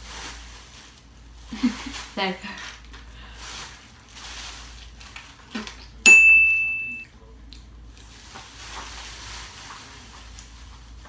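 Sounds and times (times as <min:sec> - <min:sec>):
bell-like ding: 0:06.1 - 0:07.1.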